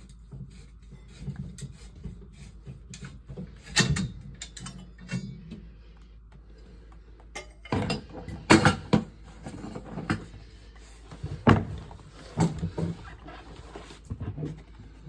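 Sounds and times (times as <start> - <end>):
tools knocking and clunking: 7.4 - 10.3, 11.1 - 13.1.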